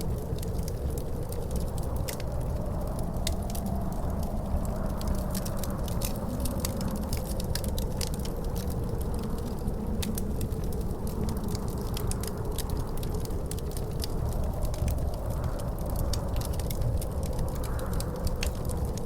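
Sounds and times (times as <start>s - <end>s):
wind rumbling and howling: 0.0s - 19.0s
wood fire crackling: 0.0s - 19.0s.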